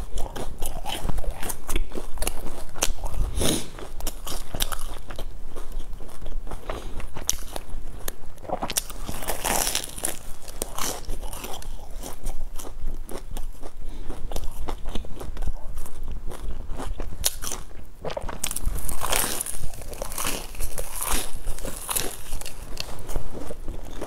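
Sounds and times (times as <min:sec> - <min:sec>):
bread crust crunching: 0:00.0 - 0:24.0.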